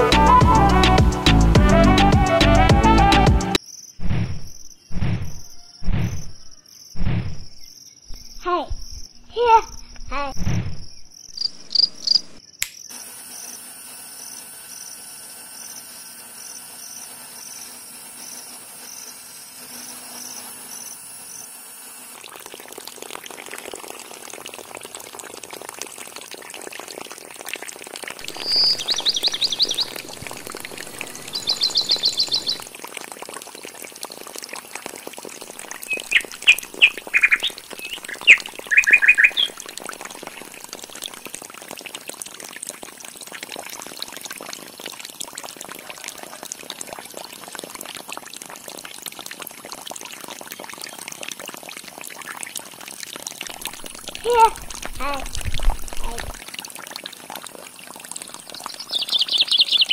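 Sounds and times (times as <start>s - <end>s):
insects chirping: 3.6s - 23.8s, 28.2s - 34.3s, 35.4s - 41.3s
water pouring and splashing: 20.3s - 59.9s
bird calls: 28.2s - 32.6s, 35.8s - 39.6s, 58.6s - 59.9s.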